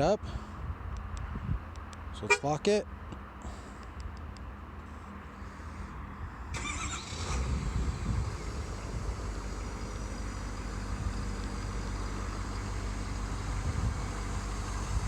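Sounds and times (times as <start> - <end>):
diesel engine idling: 4.8 - 15.0.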